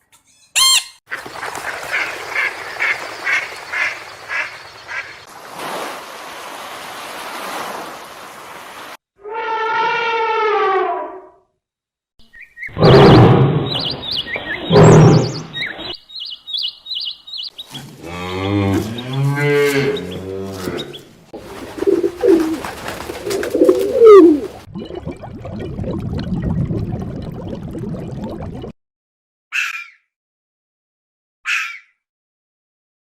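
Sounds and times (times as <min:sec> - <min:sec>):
high bird chirps: 0:12.2 - 0:17.8
cow mooing: 0:18.0 - 0:20.9
pigeon cooing: 0:21.4 - 0:24.6.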